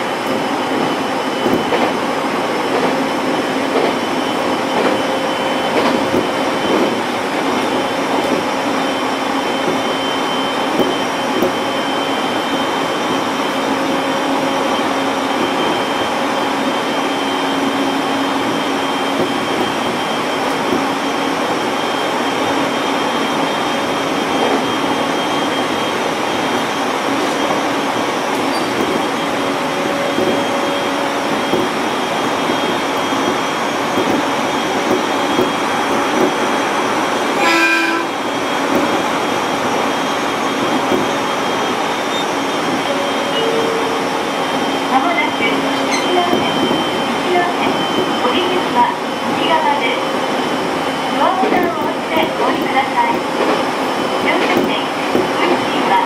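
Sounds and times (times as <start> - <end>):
electric train wheels rolling on rail: 0.0 - 56.0
train horn blast: 37.4 - 38.2.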